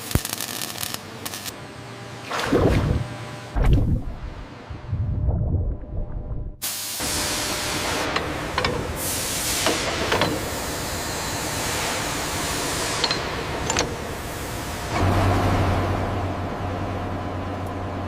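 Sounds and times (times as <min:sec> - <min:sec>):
low steady hum: 0:01.5 - 0:06.6.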